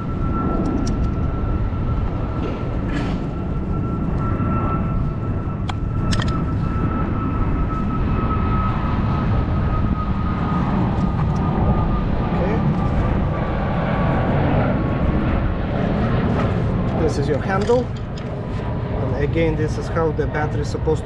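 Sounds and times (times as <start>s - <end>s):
low rumble: 0.0s - 20.4s
sharp clicks: 5.7s - 6.4s.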